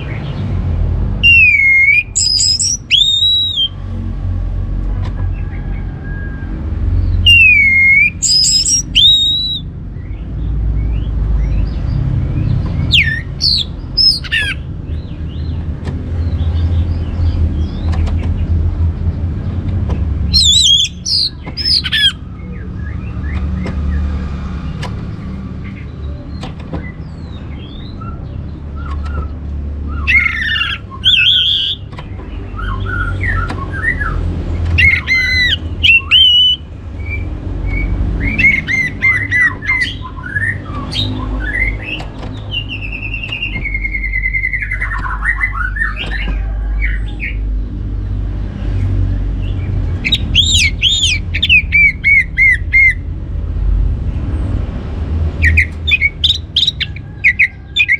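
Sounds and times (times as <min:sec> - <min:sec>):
thrush singing whistled phrases: 0:01.2 - 0:03.8, 0:07.1 - 0:09.7, 0:12.9 - 0:14.6, 0:20.3 - 0:22.2, 0:29.2 - 0:31.9, 0:34.8 - 0:46.0, 0:50.0 - 0:53.1, 0:55.4 - 0:57.9.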